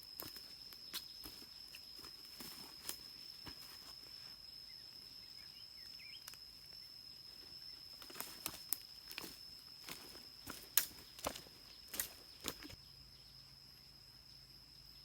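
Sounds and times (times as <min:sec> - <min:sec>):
footsteps on forest ground: 0:00.0 - 0:04.2, 0:06.4 - 0:12.8
high-pitched insect drone: 0:00.0 - 0:15.0.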